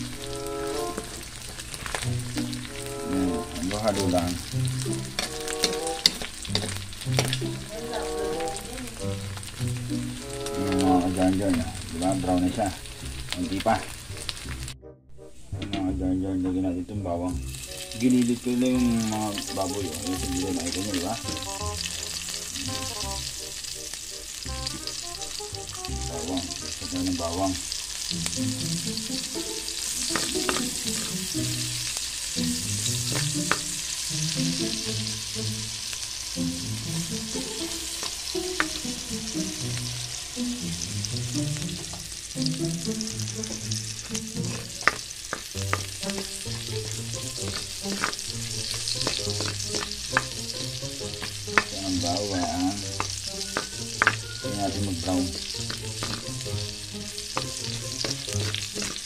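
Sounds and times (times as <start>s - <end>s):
meat sizzling in hot oil: 0.0s - 14.8s, 17.3s - 59.0s
metal ladle clicking against wok: 5.1s - 7.5s.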